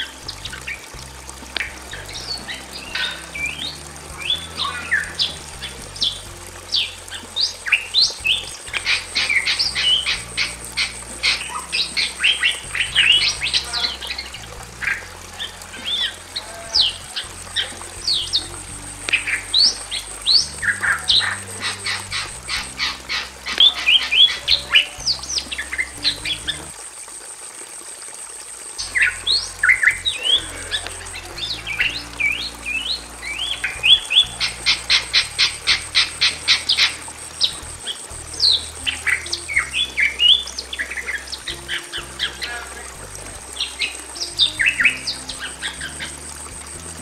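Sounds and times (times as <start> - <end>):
mynas calling loudly: 0.0 - 26.9, 28.8 - 47.0.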